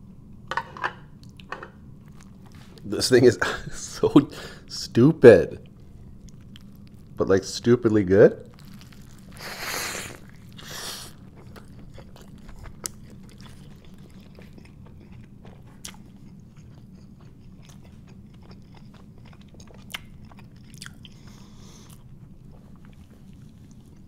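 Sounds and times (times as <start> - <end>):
steady low hum: 0.0 - 24.0
close chewing with wet mouth sounds: 5.6 - 7.2, 8.5 - 24.0.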